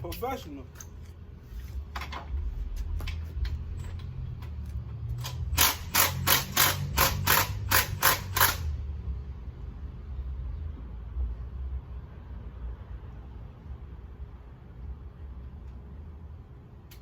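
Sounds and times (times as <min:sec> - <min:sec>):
steady low rumble: 0:00.0 - 0:05.8
ratchet wrench clicking: 0:05.2 - 0:08.8.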